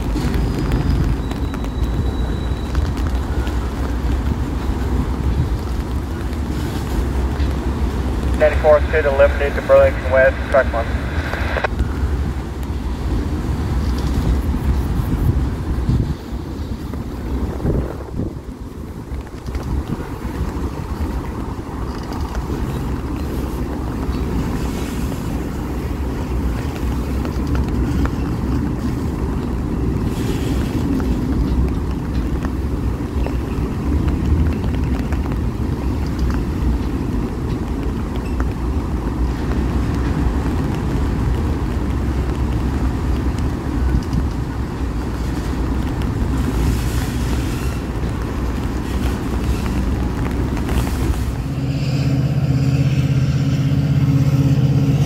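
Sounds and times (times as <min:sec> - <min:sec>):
train wheels rumbling on rails: 0:00.0 - 0:55.0
wind on microphone: 0:10.3 - 0:52.5.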